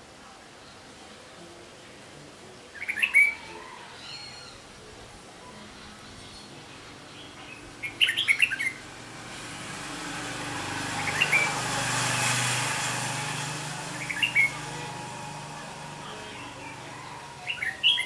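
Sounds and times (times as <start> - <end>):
bulbul chirpy calls: 7.2 - 8.8, 16.0 - 18.0
passing vehicle: 7.5 - 18.0.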